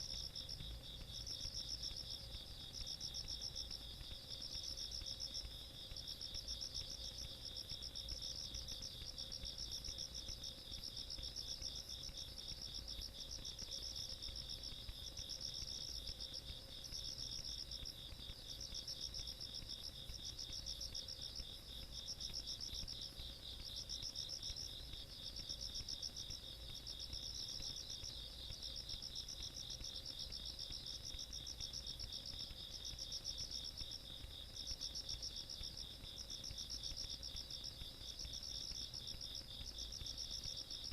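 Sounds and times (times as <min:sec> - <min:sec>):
steady rapid insect trill: 0:00.0 - 0:40.9.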